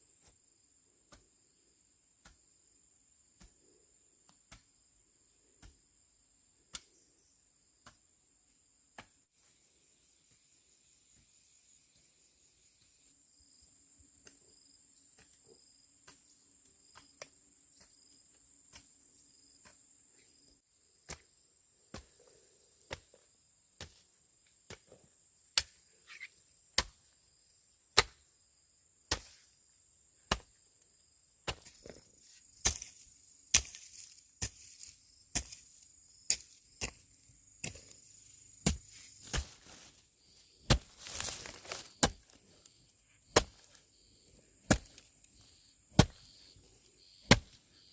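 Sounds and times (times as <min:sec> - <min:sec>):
sharp chopping strikes: 0:28.0 - 0:28.2, 0:29.1 - 0:29.4, 0:32.6 - 0:35.6, 0:38.6 - 0:39.9, 0:40.6 - 0:42.3, 0:43.3 - 0:43.8, 0:44.6 - 0:45.0, 0:45.9 - 0:46.3, 0:47.2 - 0:47.6.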